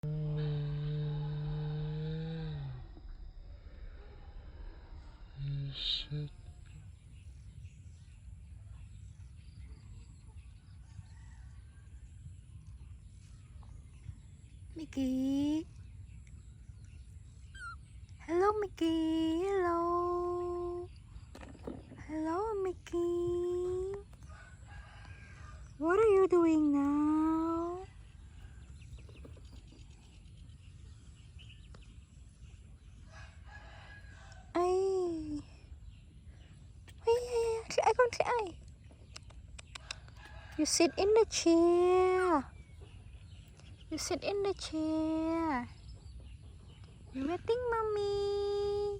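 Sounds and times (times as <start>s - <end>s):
low rumble: 0.0s - 10.6s
low steady background noise: 0.0s - 48.9s
birds chirping and calling: 12.2s - 48.9s.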